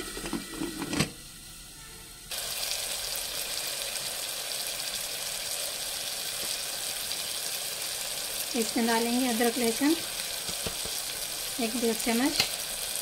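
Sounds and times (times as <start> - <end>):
masala sizzling in oil: 0.0 - 13.0.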